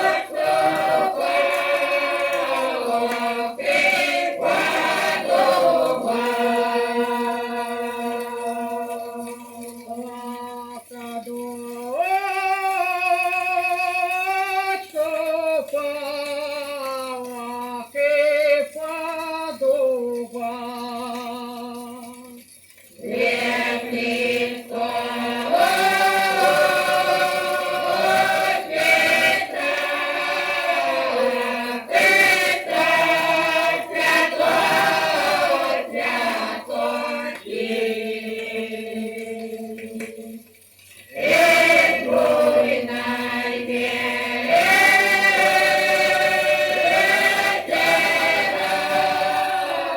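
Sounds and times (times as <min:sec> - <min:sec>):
choir singing: 0:00.0 - 0:09.8, 0:23.0 - 0:40.5, 0:41.1 - 0:49.9
record surface hiss: 0:00.0 - 0:49.9.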